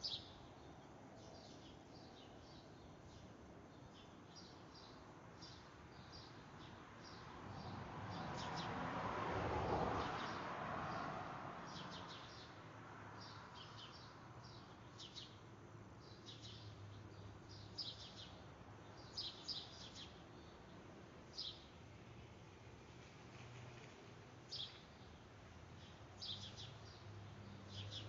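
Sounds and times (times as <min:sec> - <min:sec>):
small birds chirping: 0:00.0 - 0:08.7, 0:13.2 - 0:21.8, 0:24.5 - 0:28.0.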